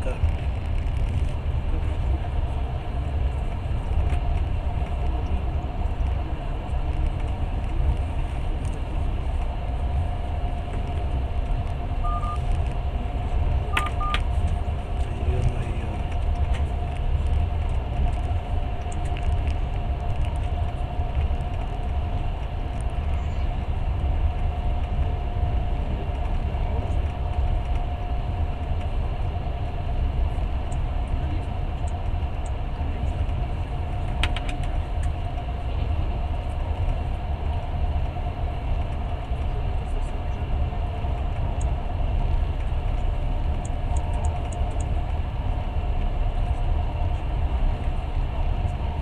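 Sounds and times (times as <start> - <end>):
constant hum: 0.0 - 49.0
train rumble inside carriage: 0.0 - 49.0
short electronic beeps: 12.0 - 12.4, 13.7 - 14.2.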